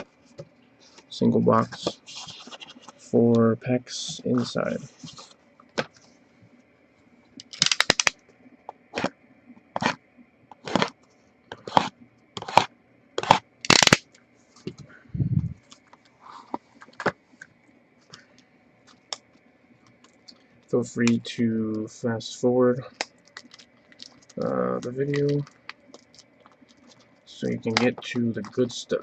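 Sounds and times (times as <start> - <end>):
cardboard and wrapper tearing: 13.2 - 14.0.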